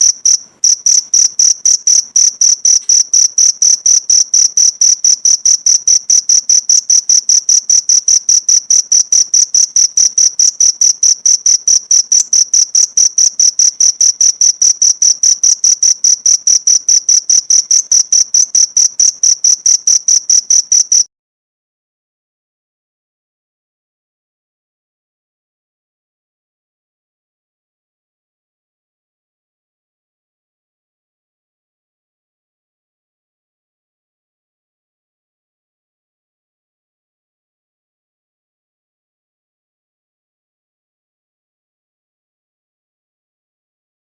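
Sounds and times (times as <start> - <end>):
cricket chirping: 0.0 - 21.1.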